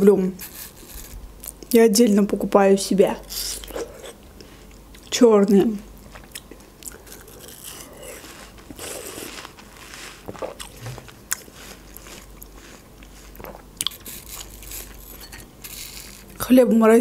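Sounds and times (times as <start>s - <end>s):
wet crunchy chewing: 6.0s - 16.4s.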